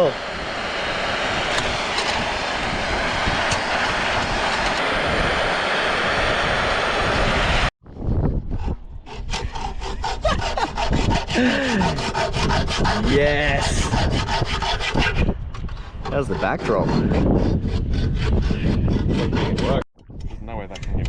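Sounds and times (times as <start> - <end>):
gas blowtorch roaring: 0.0 - 7.8
hand tool rasping strokes: 8.6 - 19.8.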